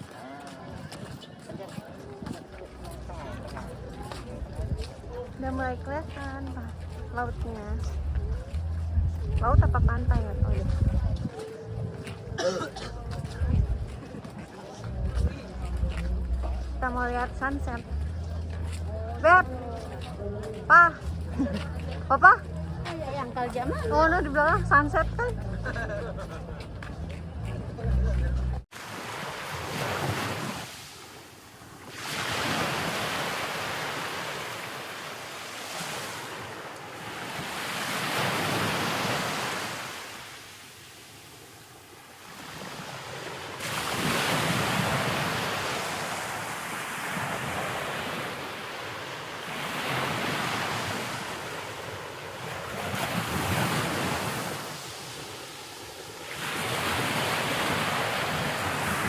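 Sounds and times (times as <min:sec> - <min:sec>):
wind: 0:00.0 - 0:59.0
wind buffeting microphone: 0:00.6 - 0:28.6
ocean surf: 0:28.7 - 0:59.0.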